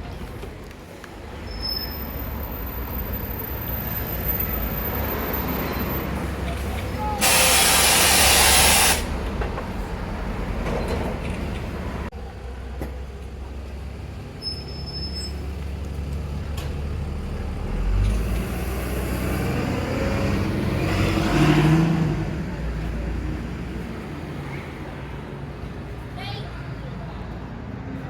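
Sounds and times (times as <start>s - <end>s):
street traffic: 0.0s - 28.0s
bus engine pulling past: 1.2s - 28.0s
air brakes hissing: 7.0s - 9.3s.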